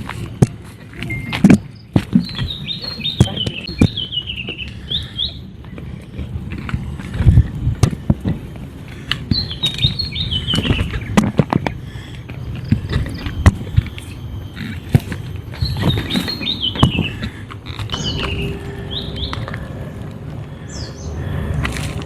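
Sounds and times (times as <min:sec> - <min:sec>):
bird singing: 0:01.0 - 0:08.2, 0:08.8 - 0:21.6
footsteps: 0:10.5 - 0:20.6.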